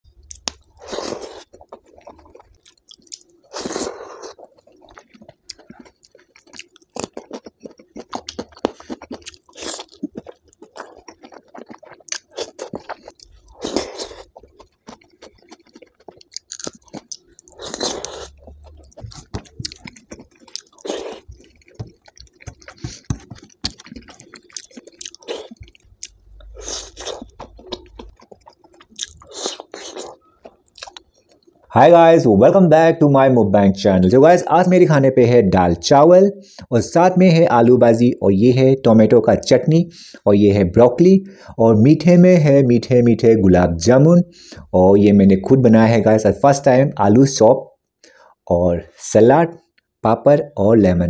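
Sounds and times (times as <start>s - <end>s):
wet chewing mouth sounds: 0.2s - 31.7s.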